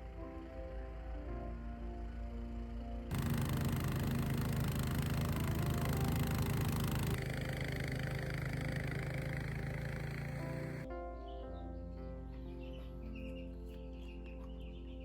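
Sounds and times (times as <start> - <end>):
motor running: 3.1 - 10.9.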